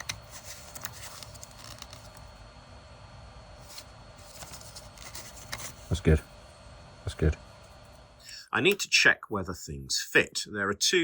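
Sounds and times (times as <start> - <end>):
plastic parts clicking and rubbing: 0.0 - 2.3.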